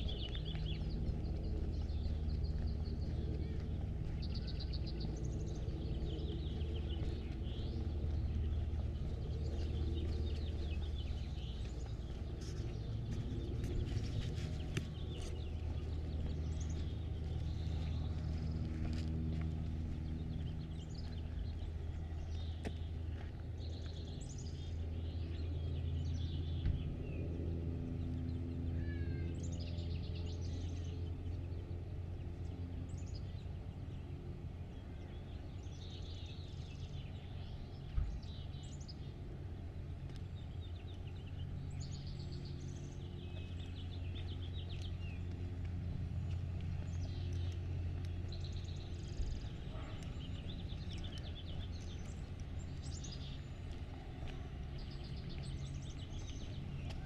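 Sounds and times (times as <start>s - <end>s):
low mechanical hum: 0.0s - 57.0s
songbirds chirping: 0.0s - 57.0s.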